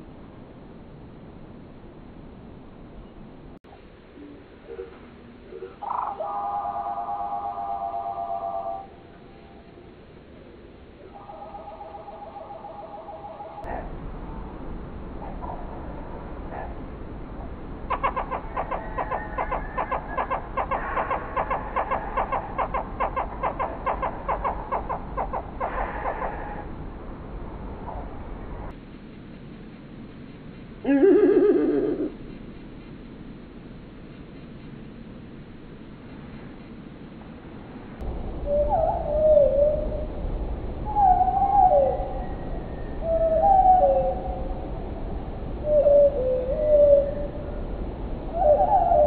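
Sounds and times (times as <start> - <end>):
steady low rumble: 8.6 - 43.4
bird clucking calls: 17.9 - 26.6.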